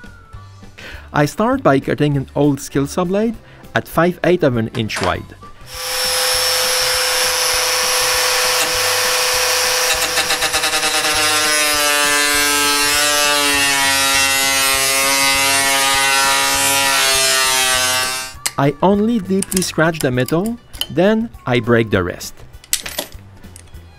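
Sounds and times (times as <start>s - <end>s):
power tool whining: 5.5s - 18.5s
hiss of cutting steel: 5.6s - 12.5s.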